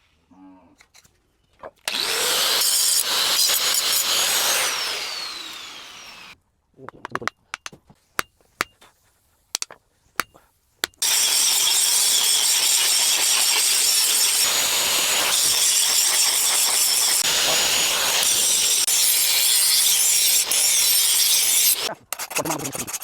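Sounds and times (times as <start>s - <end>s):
steel being ground: 1.9s - 6.4s, 11.0s - 21.9s.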